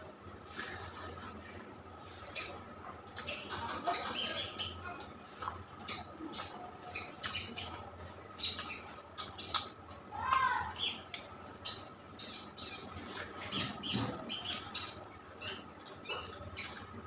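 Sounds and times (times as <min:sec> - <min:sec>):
wet chewing and lip-smacking: 0:07.2 - 0:10.1.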